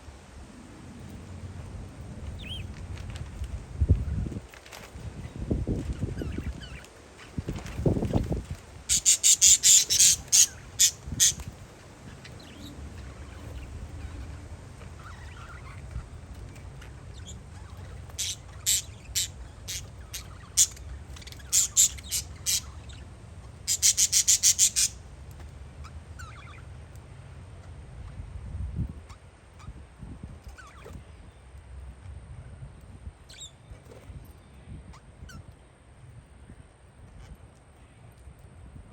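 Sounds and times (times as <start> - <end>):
parakeets squawking: 8.9 - 25.0, 26.2 - 26.7.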